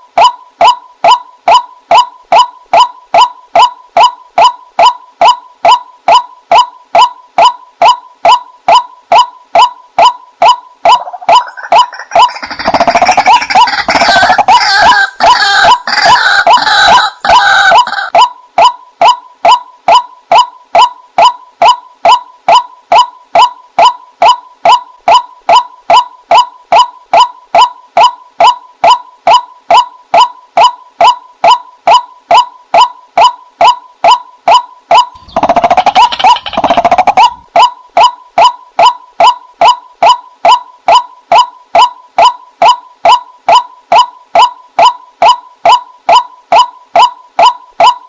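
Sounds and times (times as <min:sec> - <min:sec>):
waterhen calls: 0:05.6 - 0:18.3, 0:34.5 - 0:39.4.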